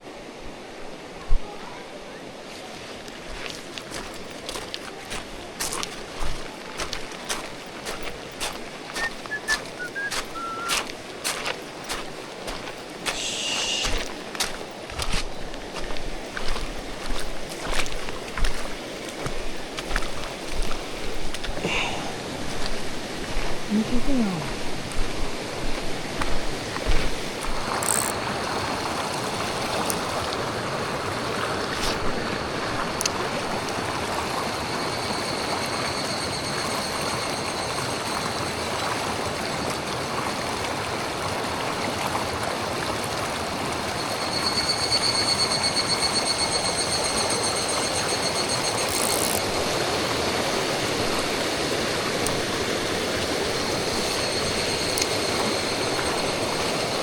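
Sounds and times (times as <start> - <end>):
stream water running: 0.0 - 57.0
high fast-pulsing call: 9.0 - 10.8.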